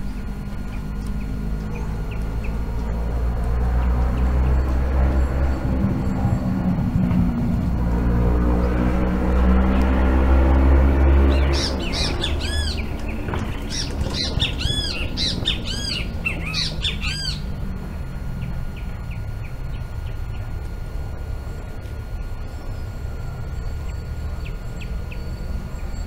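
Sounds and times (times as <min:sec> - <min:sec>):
low rumble: 0:00.0 - 0:23.9
bird calling rapidly: 0:11.2 - 0:17.6.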